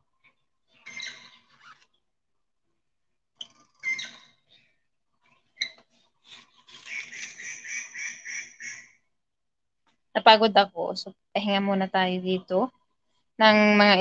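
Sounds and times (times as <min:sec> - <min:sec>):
bird chirping: 0:00.1 - 0:02.0, 0:03.4 - 0:09.0.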